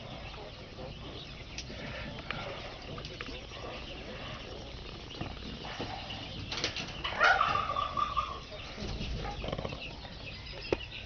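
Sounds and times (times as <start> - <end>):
poultry calling: 0.0 - 11.0
wings fluttering: 5.2 - 8.1.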